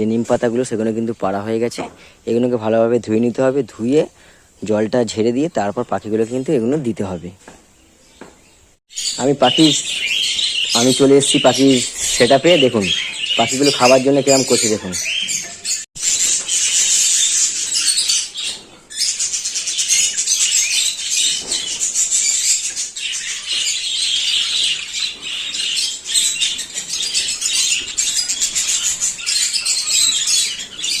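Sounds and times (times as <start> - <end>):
budgerigars chattering and chirping: 8.9 - 31.0.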